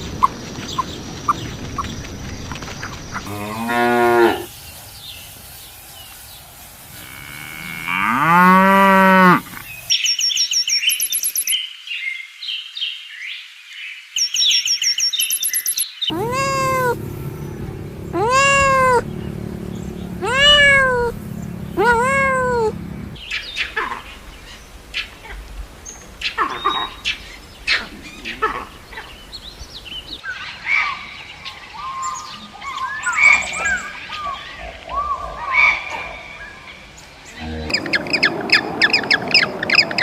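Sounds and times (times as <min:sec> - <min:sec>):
cow mooing: 0:03.2 - 0:04.5, 0:06.9 - 0:09.7, 0:16.1 - 0:23.2, 0:37.4 - 0:37.8
cat meowing: 0:20.2 - 0:21.2, 0:21.8 - 0:22.8.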